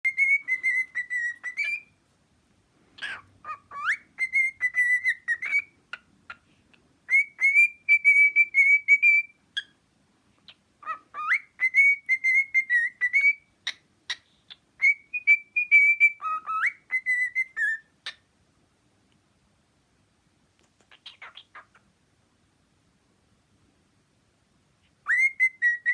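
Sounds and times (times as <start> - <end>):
cockatiel whistling a tune: 0.0 - 1.9, 3.0 - 6.4, 7.1 - 9.8, 10.8 - 18.2, 21.0 - 21.7, 25.0 - 25.9.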